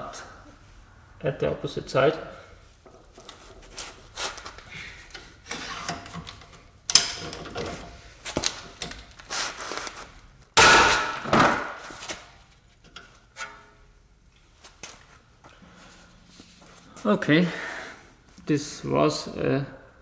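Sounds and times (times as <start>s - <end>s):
loud metal clank: 10.6s - 11.8s.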